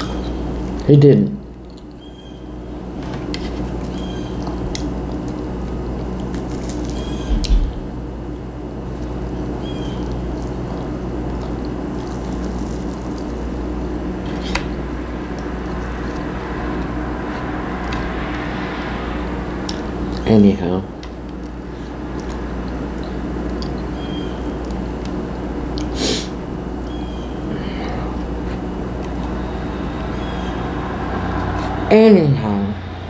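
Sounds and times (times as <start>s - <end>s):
steady low hum: 0.0s - 33.0s
wet chewing: 9.8s - 14.8s, 22.2s - 26.0s.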